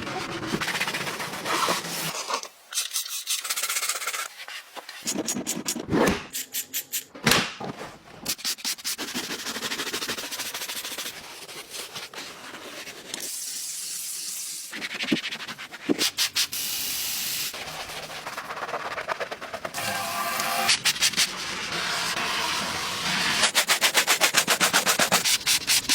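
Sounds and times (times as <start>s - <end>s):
brush scrubbing: 23.2s - 25.9s.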